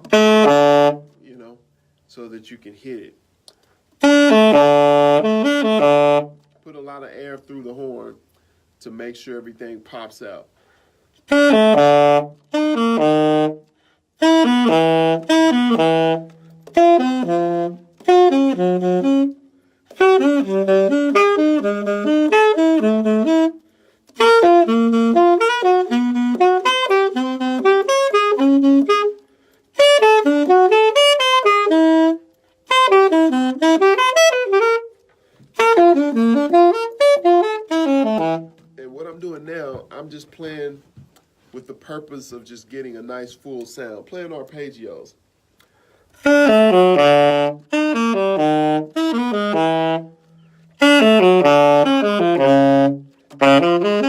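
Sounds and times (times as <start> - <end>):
alto saxophone arpeggios: 0.0 - 1.5, 4.0 - 7.3, 11.2 - 40.7, 45.8 - 54.0
player breathing: 10.5 - 11.2, 45.6 - 46.2.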